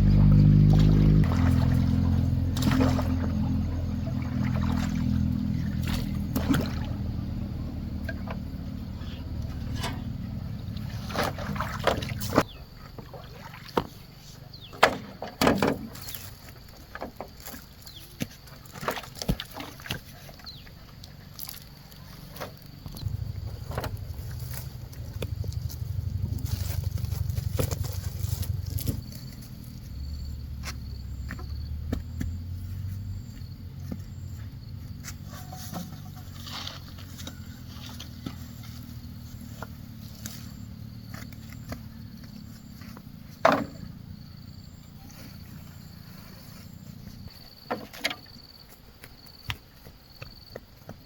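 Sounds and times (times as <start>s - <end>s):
water sloshing: 0.0s - 30.0s.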